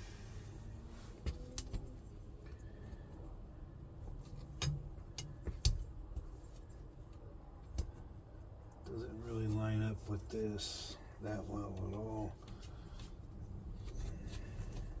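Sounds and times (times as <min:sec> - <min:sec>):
shifter boot clicks and knocks: 0:04.2 - 0:09.0.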